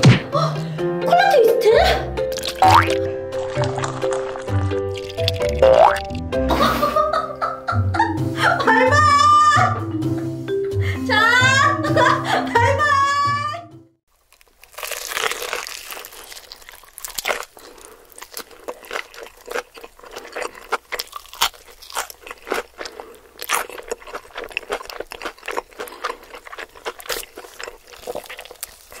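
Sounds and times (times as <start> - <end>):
crispy food crunching: 2.3 - 6.2, 14.1 - 29.0.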